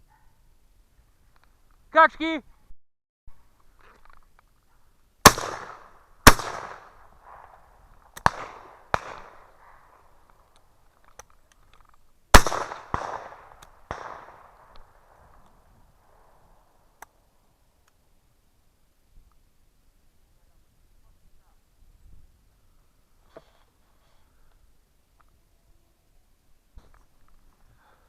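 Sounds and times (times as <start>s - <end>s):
shotgun shots echoing: 5.2s - 10.1s, 12.3s - 15.4s.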